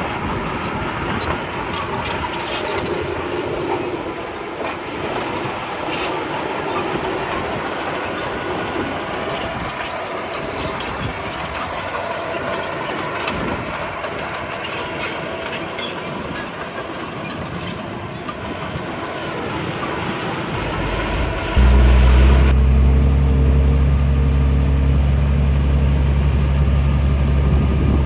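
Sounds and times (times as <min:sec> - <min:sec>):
tracks clanking and rattling: 0:00.1 - 0:23.5
bulldozer diesel engine running: 0:16.8 - 0:28.0.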